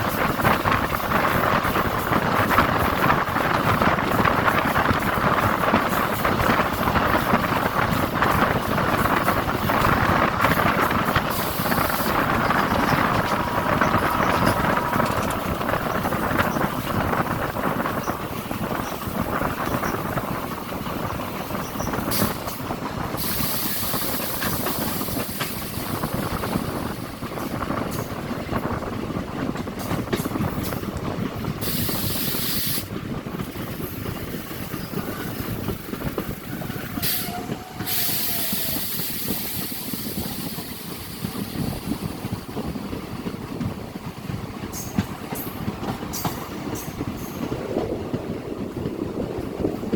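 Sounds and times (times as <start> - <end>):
train rumbling on rails: 0.0 - 49.9
thin squeal: 11.8 - 17.0.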